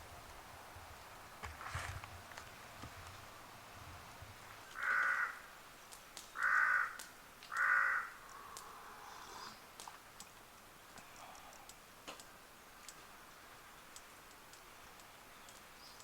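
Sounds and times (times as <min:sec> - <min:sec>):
crow cawing: 0:04.8 - 0:05.5, 0:06.4 - 0:08.6.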